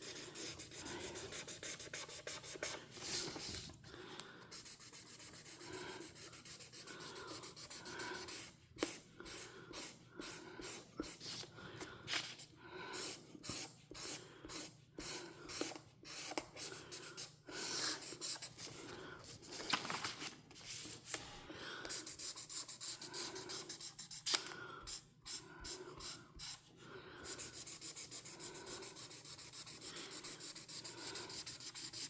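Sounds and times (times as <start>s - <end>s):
coloring tool scratching paper: 0.0s - 3.5s, 4.5s - 9.9s, 27.3s - 32.0s.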